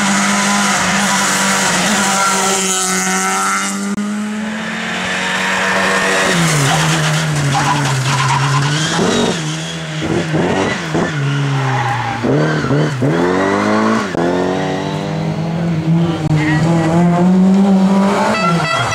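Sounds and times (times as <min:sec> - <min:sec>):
rally car engine at high revs: 0:00.0 - 0:18.9
tyre squeal: 0:05.7 - 0:13.5.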